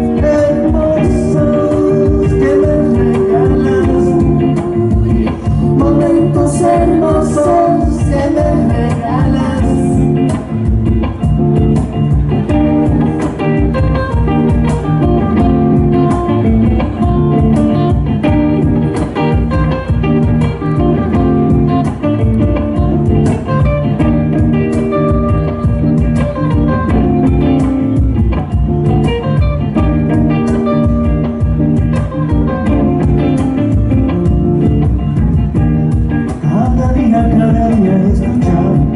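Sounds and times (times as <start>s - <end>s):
drum beat: 0.0s - 38.9s
live band guitar: 0.0s - 38.9s.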